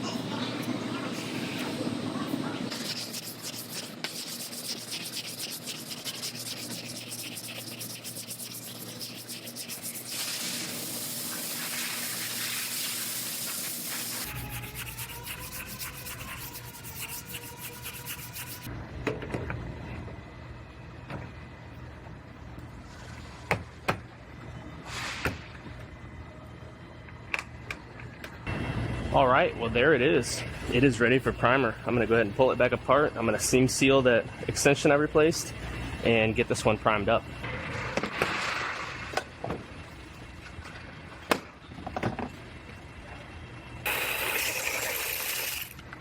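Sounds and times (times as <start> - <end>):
rhythmic sanding scrape: 2.7 - 10.2, 12.2 - 18.7.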